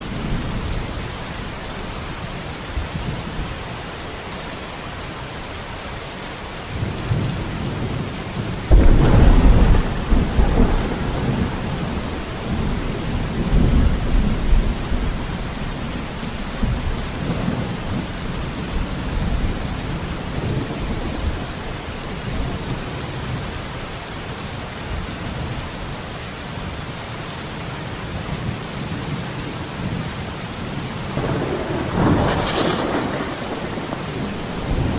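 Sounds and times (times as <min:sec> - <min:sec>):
heavy rain: 0:00.0 - 0:34.9
thunder rumbling: 0:06.7 - 0:23.4, 0:29.9 - 0:34.9
thunder crack: 0:08.7 - 0:15.5, 0:31.2 - 0:34.9.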